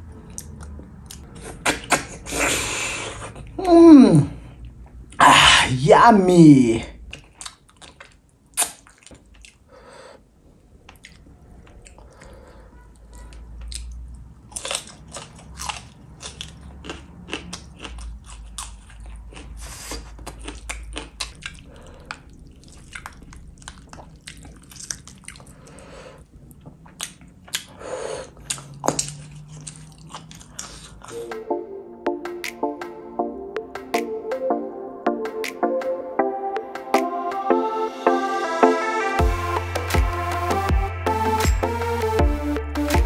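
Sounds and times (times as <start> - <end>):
person chewing with mouth clicks: 0.2 - 2.0, 7.0 - 9.7, 10.8 - 12.4, 13.6 - 31.3.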